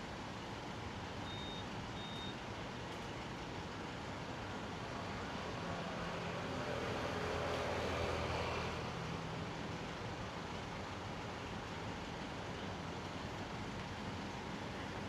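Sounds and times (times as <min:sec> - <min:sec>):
short electronic beeps: 0:01.2 - 0:02.4
vehicle engine hum: 0:02.4 - 0:15.0
passing road traffic: 0:02.5 - 0:15.0.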